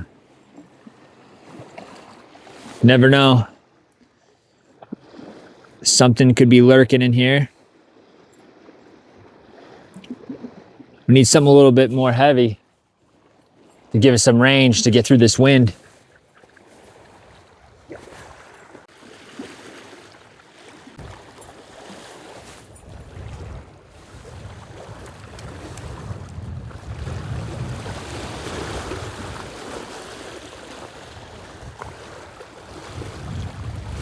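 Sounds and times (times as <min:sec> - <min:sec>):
lake waves breaking on shore: 0:00.0 - 0:34.0
wind buffeting microphone: 0:22.6 - 0:34.0.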